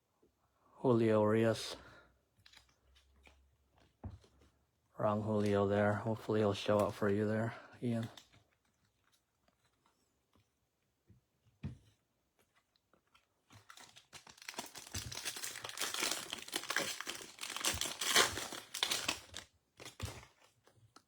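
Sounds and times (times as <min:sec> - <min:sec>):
foil wrapper tearing and crinkling: 0:13.5 - 0:21.0.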